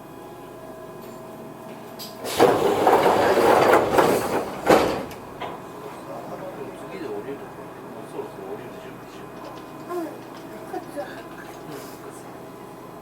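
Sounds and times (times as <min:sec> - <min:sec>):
train doors air hiss and sliding: 0:01.9 - 0:06.2
doors thumping shut: 0:02.3 - 0:05.6.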